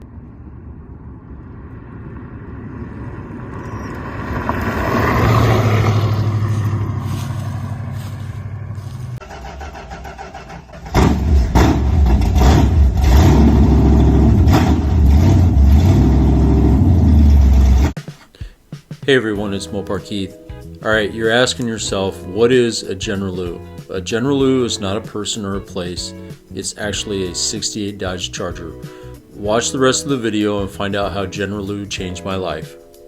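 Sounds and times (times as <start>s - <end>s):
car engine running: 0.0s - 18.0s
engine revving loudly: 1.6s - 10.0s, 10.9s - 18.0s.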